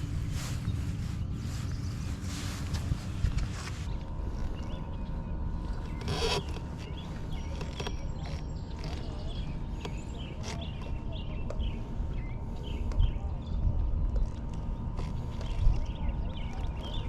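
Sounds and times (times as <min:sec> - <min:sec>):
birds chirping: 0:00.0 - 0:17.0
low steady rumble: 0:00.0 - 0:17.0.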